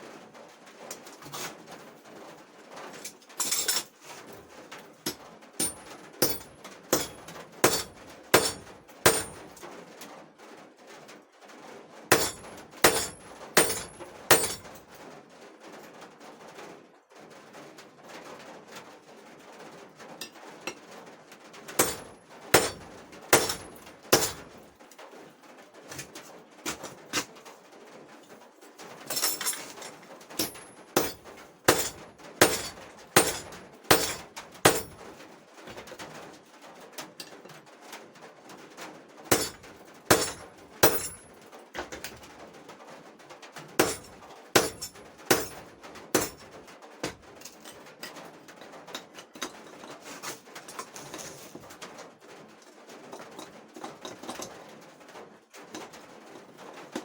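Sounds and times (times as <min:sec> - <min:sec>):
hammer striking hot steel: 0:05.1 - 0:09.4, 0:12.1 - 0:14.6, 0:21.8 - 0:24.5, 0:30.4 - 0:35.0, 0:39.3 - 0:41.2, 0:43.8 - 0:45.6.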